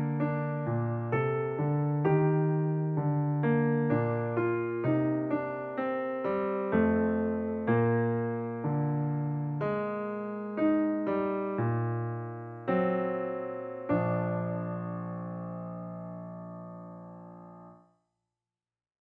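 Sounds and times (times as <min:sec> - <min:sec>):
slow piano music: 0:00.0 - 0:17.9.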